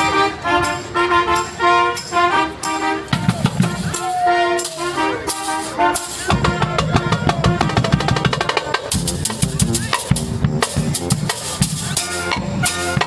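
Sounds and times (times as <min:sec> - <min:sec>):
fast drum-kit beat: 0:03.1 - 0:13.0.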